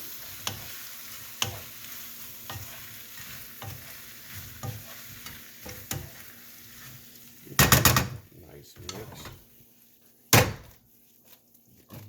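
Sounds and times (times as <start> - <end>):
food sizzling in a skillet: 0.0 - 12.0
utensil knocking against pan: 7.6 - 8.2.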